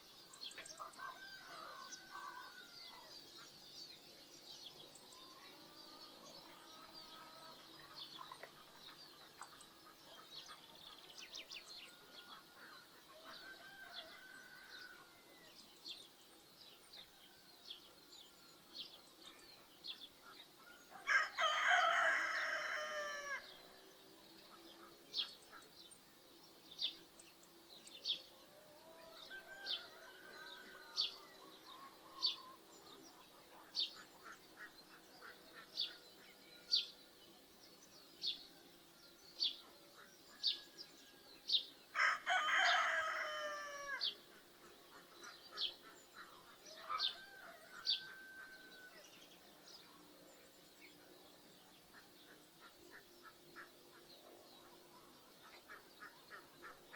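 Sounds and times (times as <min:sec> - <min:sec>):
small birds chirping: 0:00.0 - 0:56.9
distant roosters crowing: 0:00.6 - 0:03.2, 0:13.2 - 0:15.6, 0:20.6 - 0:23.8, 0:28.6 - 0:32.7, 0:40.4 - 0:44.2, 0:46.6 - 0:49.2
rooster crowing: 0:20.9 - 0:23.4, 0:42.0 - 0:44.0.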